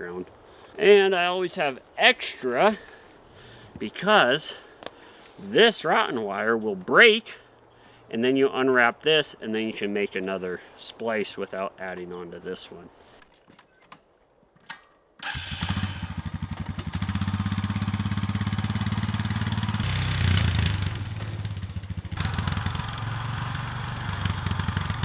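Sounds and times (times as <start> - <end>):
engine starting and running: 15.2 - 25.0.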